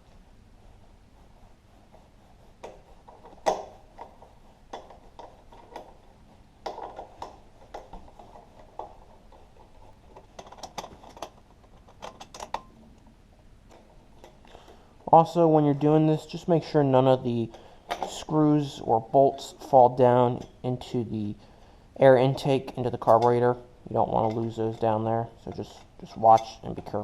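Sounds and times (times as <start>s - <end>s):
small metal parts knocking: 10.1s - 12.7s.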